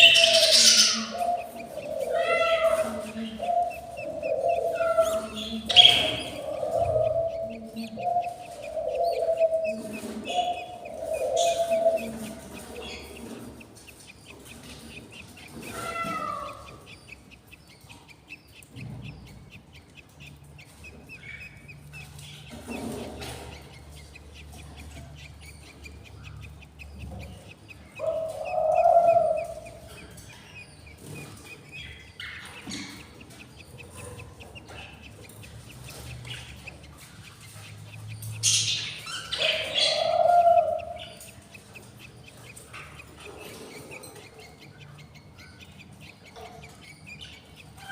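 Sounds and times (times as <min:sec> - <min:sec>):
budgies chirping: 0:00.0 - 0:47.9.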